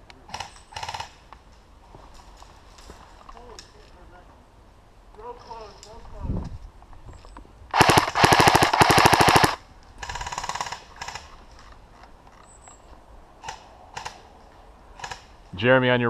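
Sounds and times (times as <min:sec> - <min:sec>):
airsoft rifle full-auto burst: 0:07.7 - 0:11.2.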